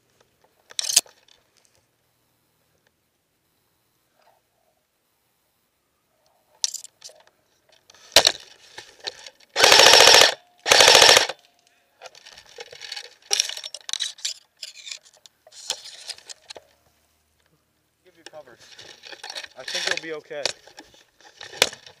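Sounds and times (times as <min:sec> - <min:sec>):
faint clicks and rustles: 0:00.0 - 0:05.2, 0:11.4 - 0:22.0
airsoft rifle full-auto bursts: 0:09.5 - 0:11.4.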